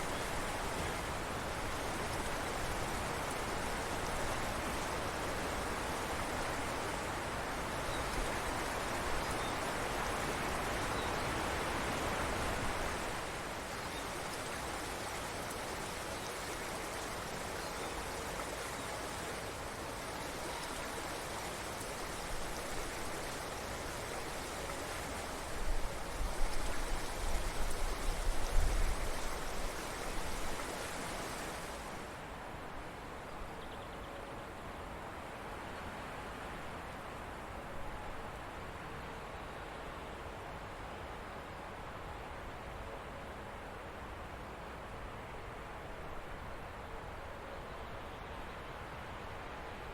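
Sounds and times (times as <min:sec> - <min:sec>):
stream water rushing: 0:00.0 - 0:33.6.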